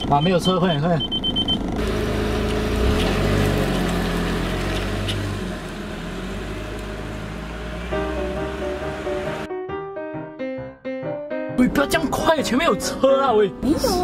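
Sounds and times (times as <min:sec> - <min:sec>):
road noise: 0:00.0 - 0:09.5
car engine accelerating: 0:01.3 - 0:09.5
soft piano music: 0:07.6 - 0:14.0.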